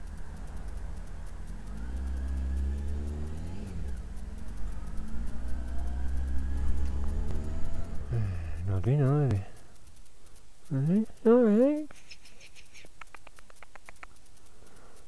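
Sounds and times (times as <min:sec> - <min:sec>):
motorcycle engine accelerating: 0:00.0 - 0:11.9.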